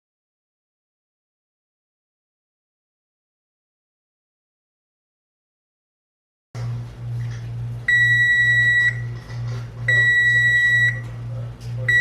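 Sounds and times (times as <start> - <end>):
electronic beeper beeping: 9.9 - 11.0.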